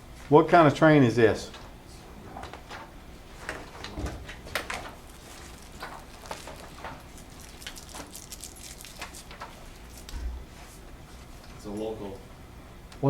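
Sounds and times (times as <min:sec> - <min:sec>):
paper rustling and clicks: 0:02.4 - 0:10.2.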